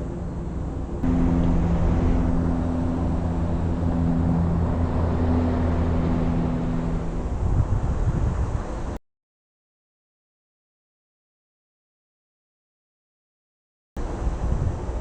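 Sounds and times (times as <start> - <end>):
engine running steadily: 0.0 - 9.0, 14.0 - 15.0.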